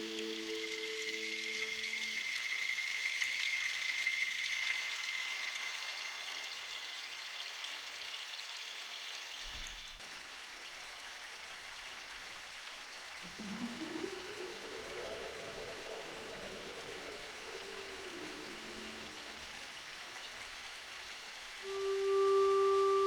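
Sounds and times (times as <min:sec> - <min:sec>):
low held tones: 0:00.0 - 0:02.3, 0:13.3 - 0:19.7, 0:21.6 - 0:23.0
rain hiss: 0:00.0 - 0:23.0
high held tone: 0:21.6 - 0:23.0.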